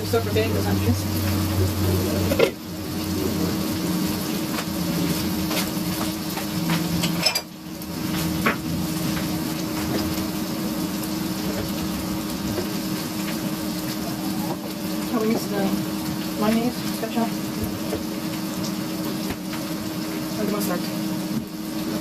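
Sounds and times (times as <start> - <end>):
steady hiss and hum: 0.0 - 22.0
utensils and dishes clinking: 6.7 - 7.6.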